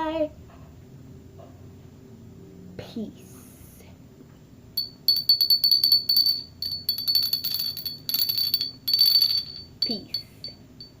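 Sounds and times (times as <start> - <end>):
small bells jingling: 4.8 - 11.0.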